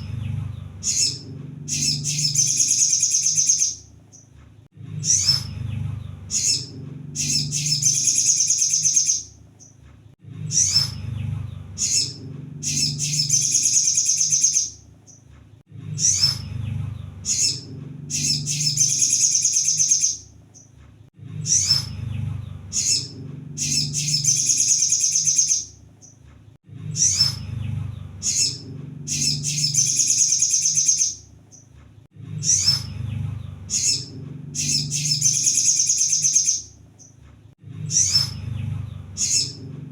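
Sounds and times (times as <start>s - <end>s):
low hum: 0.0s - 37.0s, 37.6s - 39.9s
sunbird song with chips and trill: 0.8s - 4.3s, 6.3s - 9.8s, 11.8s - 15.2s, 17.2s - 20.7s, 22.7s - 26.2s, 28.2s - 31.7s, 33.6s - 37.2s.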